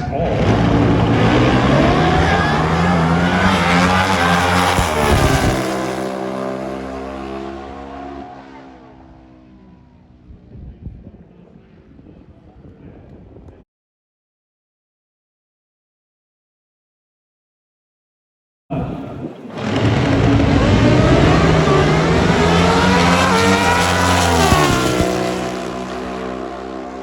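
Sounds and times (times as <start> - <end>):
drag motorcycles accelerating: 0.0 - 11.9, 19.0 - 27.0.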